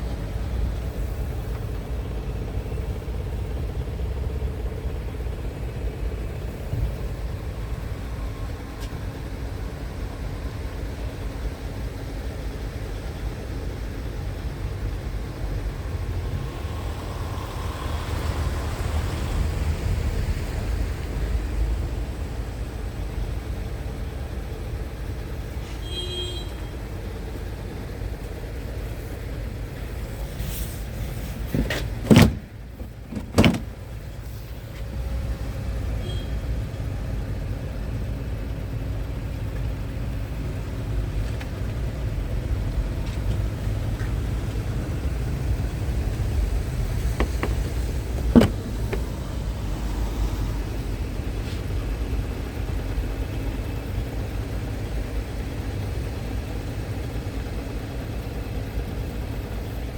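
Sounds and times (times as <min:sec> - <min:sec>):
truck low rumble: 0:00.0 - 0:59.9
sharp knocks: 0:47.2 - 0:49.2.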